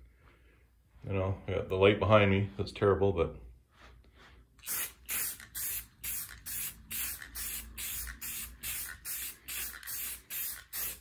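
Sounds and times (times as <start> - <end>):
spray paint can hissing: 4.6 - 11.0.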